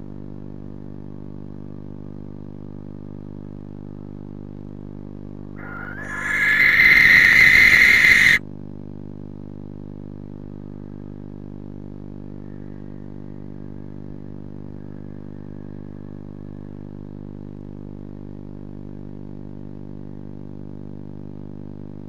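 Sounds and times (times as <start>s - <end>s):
steady low hum: 5.4s - 8.4s
barn owl screeching: 5.6s - 8.4s.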